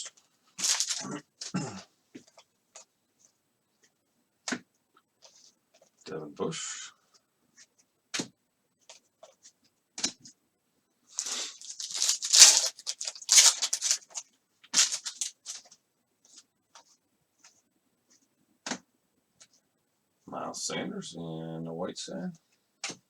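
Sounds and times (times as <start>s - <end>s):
wrapper crinkling and tearing: 0.0s - 1.2s, 11.1s - 15.7s.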